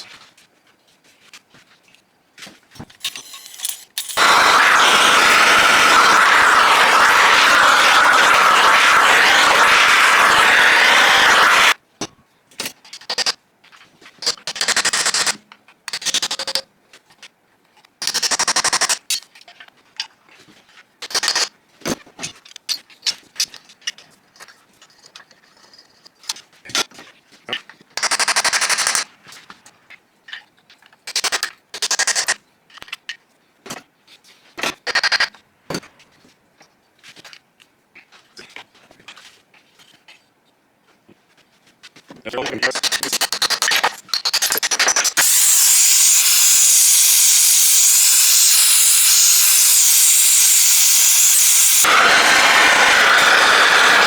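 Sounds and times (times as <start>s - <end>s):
sharp metallic knocks and scrapes: 3.0s - 4.3s
loud rapid tool rattle: 3.0s - 11.8s, 44.3s - 54.0s.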